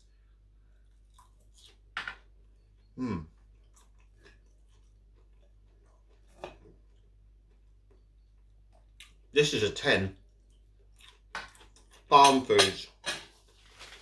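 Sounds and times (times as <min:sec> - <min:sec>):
man chewing with mouth open: 0:00.6 - 0:09.3, 0:10.2 - 0:12.1.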